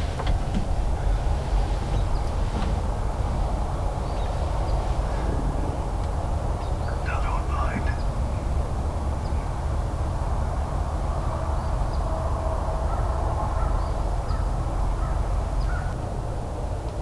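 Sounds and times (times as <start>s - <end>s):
steady low rumble: 0.0s - 17.0s
birds calling faintly: 1.0s - 8.6s.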